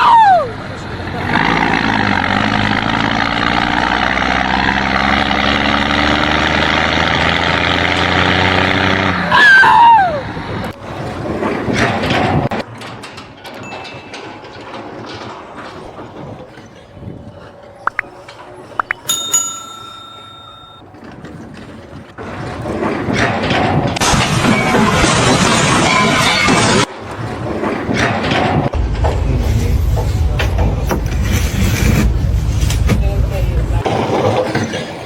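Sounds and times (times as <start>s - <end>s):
knocks and clatter: 10.7s - 16.8s, 21.0s - 35.0s
loud falling squeal: 24.3s - 26.9s.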